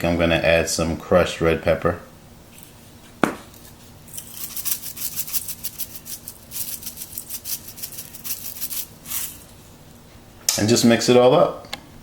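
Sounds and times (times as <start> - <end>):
spice shaker rattling: 3.6 - 9.8.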